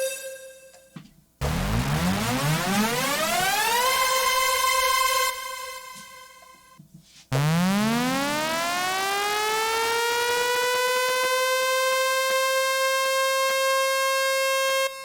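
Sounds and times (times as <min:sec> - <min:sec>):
synth riser sweeping up: 0:01.4 - 0:06.4.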